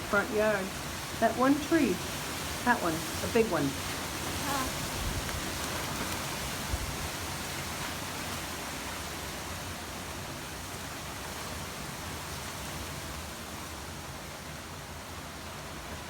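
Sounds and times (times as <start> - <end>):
gusty wind rushing over microphone: 1.8 - 8.2.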